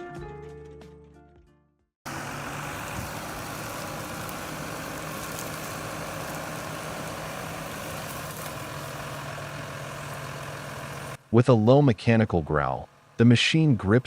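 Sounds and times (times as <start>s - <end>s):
heavy machine engine running: 2.1s - 11.3s, 12.8s - 13.3s
broad mechanical noise: 2.1s - 14.0s.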